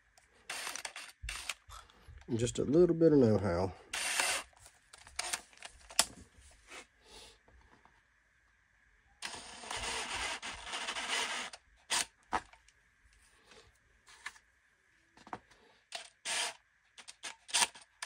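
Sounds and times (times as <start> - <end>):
power drill running: 0.5 - 1.6, 3.9 - 4.6, 9.2 - 12.0, 16.0 - 16.6.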